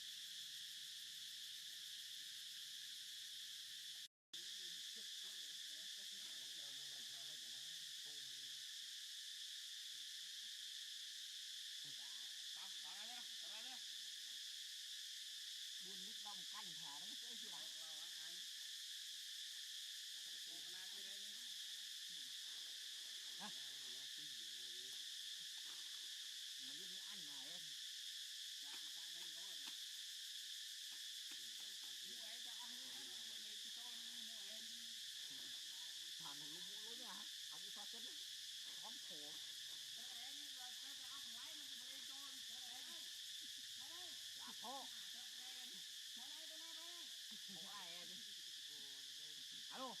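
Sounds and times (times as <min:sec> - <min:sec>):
insect chorus shrill drone: 0:00.0 - 0:50.0.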